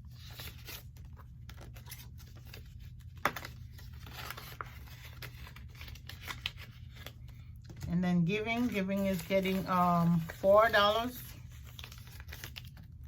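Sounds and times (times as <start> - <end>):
banknotes and envelopes rustling: 0.0 - 13.0.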